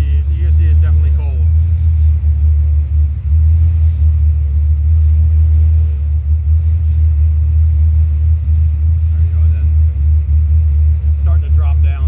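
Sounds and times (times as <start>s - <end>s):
car engine idling with deep rumble: 0.0s - 12.0s.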